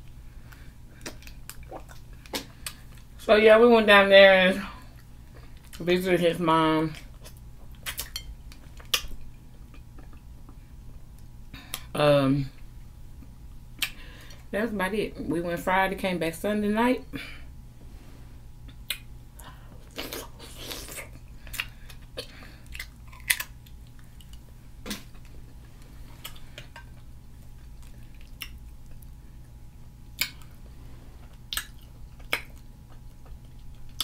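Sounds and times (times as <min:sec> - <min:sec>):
chewing and wet mouth sounds: 0:00.0 - 0:03.1, 0:04.8 - 0:05.8, 0:06.9 - 0:11.9, 0:18.6 - 0:34.0.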